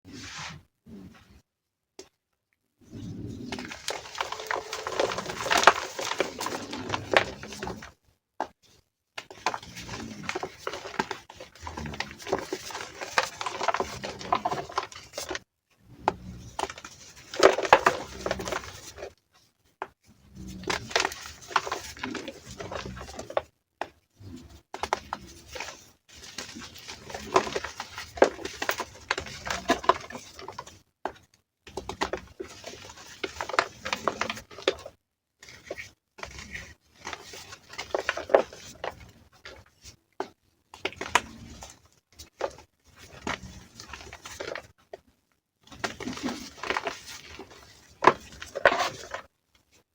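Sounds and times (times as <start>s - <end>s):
chalk crunching and crumbling: 3.1s - 7.9s, 8.7s - 19.1s.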